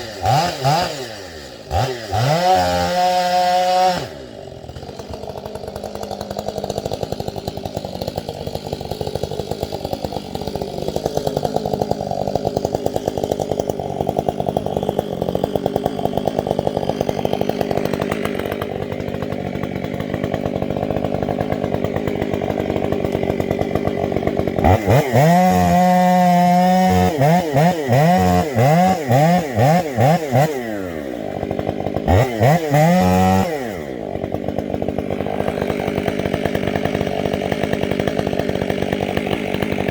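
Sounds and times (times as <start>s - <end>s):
chainsaw running and revving: 0.0s - 39.9s.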